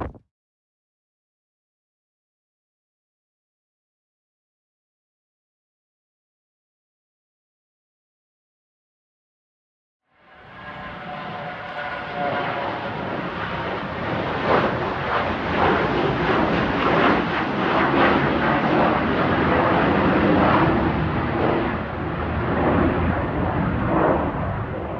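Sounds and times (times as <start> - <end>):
jet engines at takeoff: 10.1 - 24.9.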